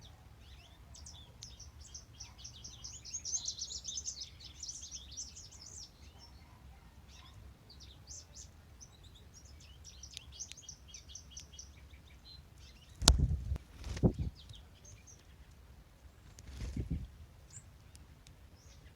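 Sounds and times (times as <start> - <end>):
songbirds singing: 0.0 - 18.9
faint low rumble: 12.6 - 14.6.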